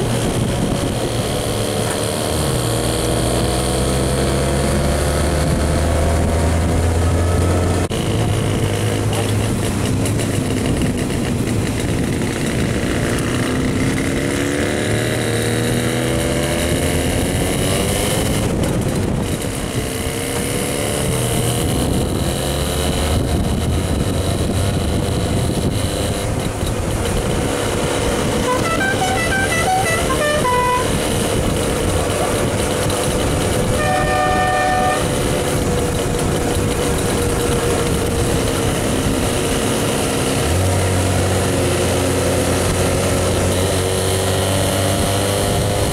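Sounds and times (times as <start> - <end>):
two-stroke engine running: 23.4 - 40.6
horn toot: 28.3 - 31.4, 33.6 - 35.3.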